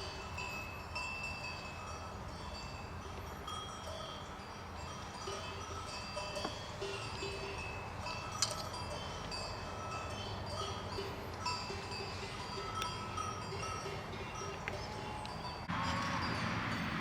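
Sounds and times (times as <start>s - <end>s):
small bells ringing: 0.0s - 17.0s
sharp clinks: 3.4s - 17.0s.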